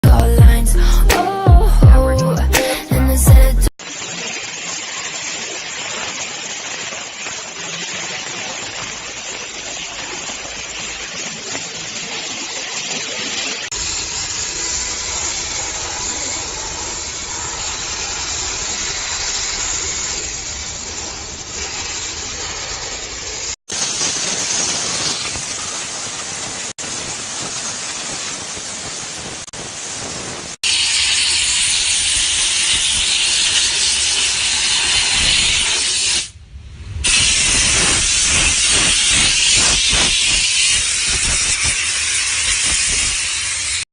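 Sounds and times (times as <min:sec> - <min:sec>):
steam cleaner hissing: 0:13.7 - 0:43.9.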